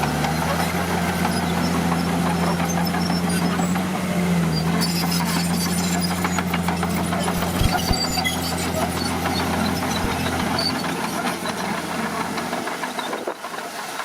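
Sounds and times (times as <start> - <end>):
bulldozer diesel engine running: 0.0 - 14.0
metal clanking and rattling: 4.6 - 13.6.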